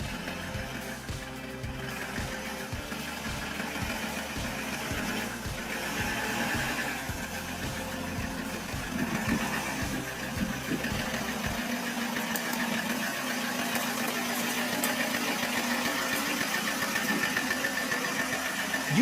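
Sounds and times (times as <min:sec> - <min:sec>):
low thumps: 0:00.0 - 0:11.6
truck engine idling: 0:00.0 - 0:19.0.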